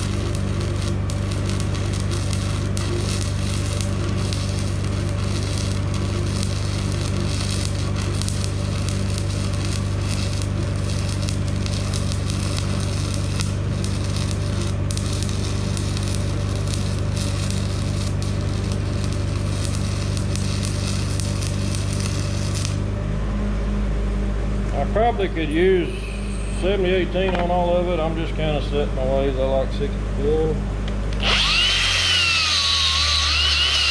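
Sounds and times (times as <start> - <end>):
welding arc crackling: 0.0 - 22.8, 31.2 - 33.9
welding machine hum: 0.0 - 23.0, 31.2 - 33.9.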